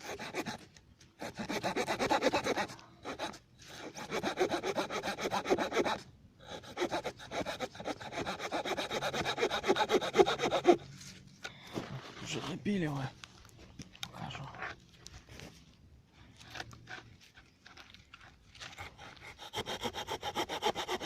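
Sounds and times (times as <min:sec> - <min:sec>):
small saw cutting through log: 0:00.0 - 0:11.0, 0:18.8 - 0:21.0.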